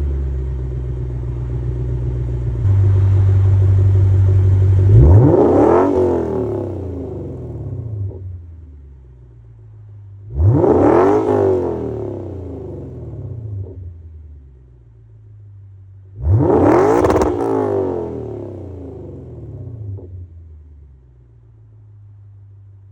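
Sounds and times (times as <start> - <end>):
car engine idling and revving: 0.0 - 22.9.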